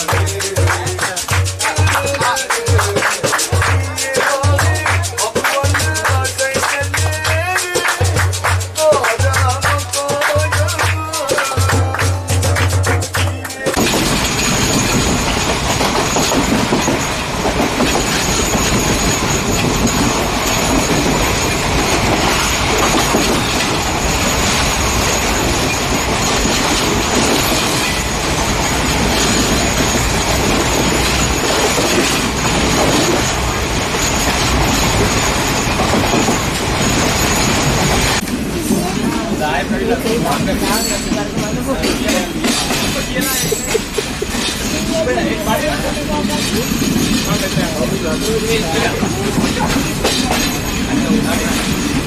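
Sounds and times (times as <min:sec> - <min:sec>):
train wheels on rails: 0:00.0 - 0:52.0.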